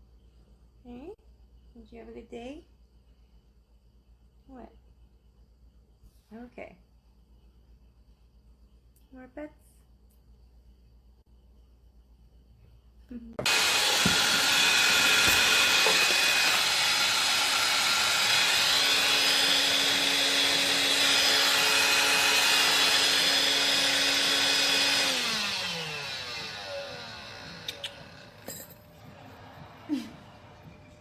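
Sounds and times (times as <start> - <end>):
electric motor whirring: 13.4 - 29.8.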